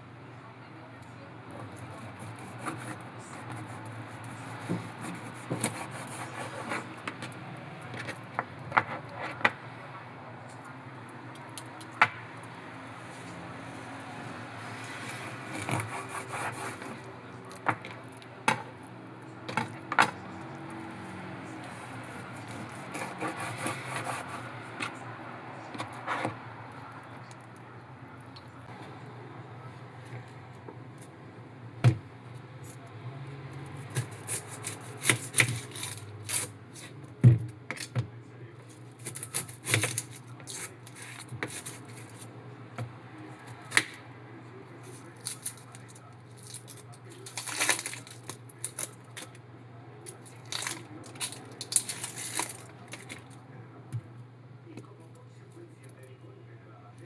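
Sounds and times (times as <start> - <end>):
scraping and rubbing: 1.7 - 9.6, 13.1 - 27.4, 33.7 - 37.0, 38.7 - 42.4, 44.8 - 49.4, 50.1 - 53.4
utensils clicking and knocking: 44.9 - 49.4, 50.0 - 53.4.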